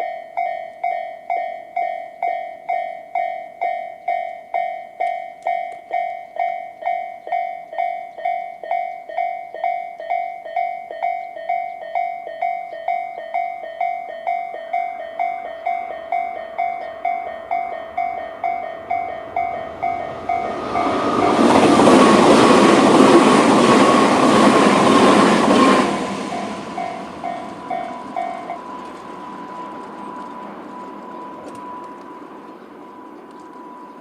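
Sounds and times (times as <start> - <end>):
level crossing alarm chiming: 0.0 - 34.0
train whine: 11.4 - 34.0
train rushing past: 14.6 - 34.0.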